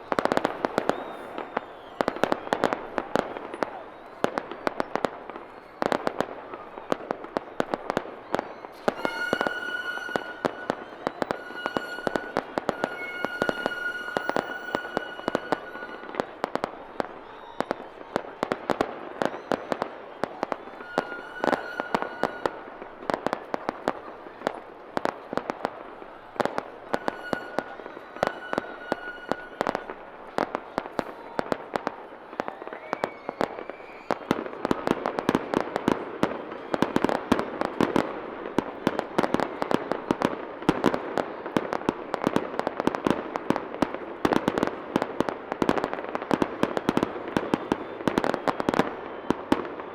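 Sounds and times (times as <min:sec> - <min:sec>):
firework crackling: 0:00.0 - 0:49.8
firework shell bursts: 0:08.7 - 0:17.1, 0:19.2 - 0:24.1.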